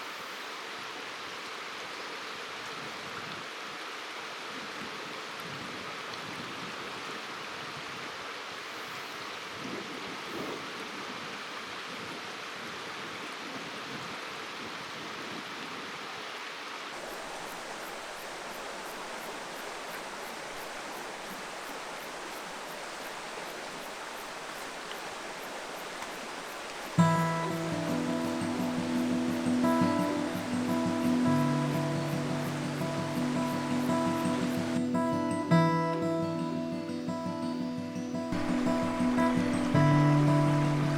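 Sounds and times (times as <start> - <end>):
river water flowing over stones: 0.0 - 35.4, 38.3 - 40.9.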